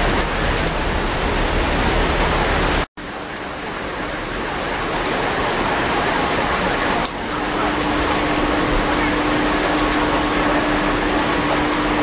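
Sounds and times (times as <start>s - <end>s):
heavy rain on water: 0.0s - 12.0s.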